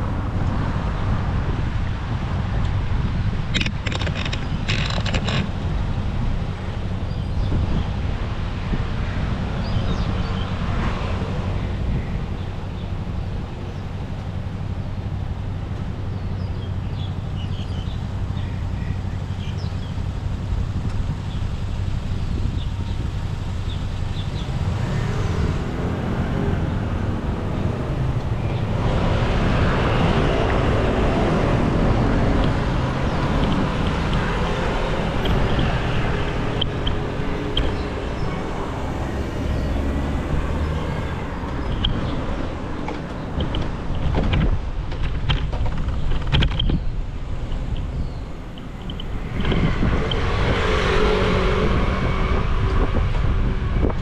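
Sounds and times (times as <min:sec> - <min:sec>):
wind on microphone: 0:00.0 - 0:14.2, 0:19.7 - 0:54.0
bicycle rolling noise: 0:02.6 - 0:06.1, 0:20.0 - 0:51.4.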